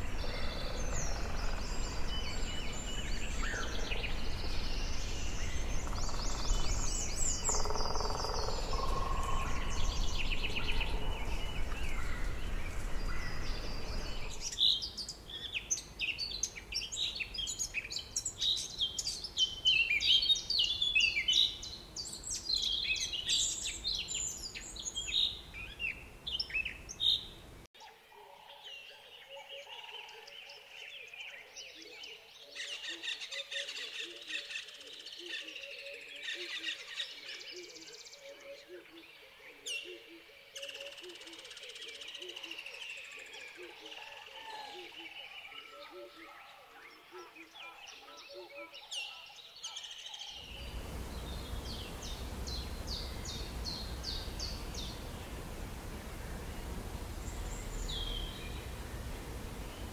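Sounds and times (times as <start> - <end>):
birds chirping and calling: 0.0 - 16.3, 43.4 - 59.9
steady background hiss: 0.0 - 27.7, 50.4 - 59.9
dense chorus of high chirps: 50.4 - 59.9
steady low tones: 50.5 - 59.9.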